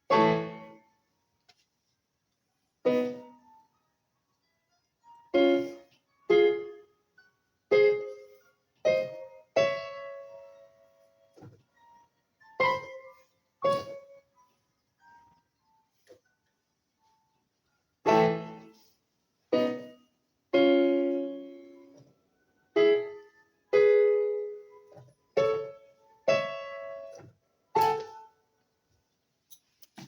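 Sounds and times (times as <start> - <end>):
piano chords ringing: 0.0 - 1.0, 2.9 - 3.6, 5.1 - 14.6, 18.0 - 18.9, 19.5 - 22.0, 22.7 - 27.2.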